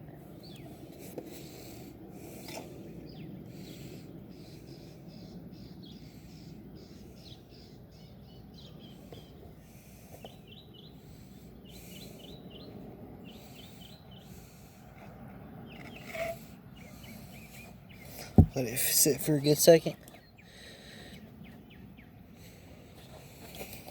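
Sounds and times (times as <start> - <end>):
bird chirping: 3.0 - 9.5, 10.1 - 14.3, 15.6 - 18.7.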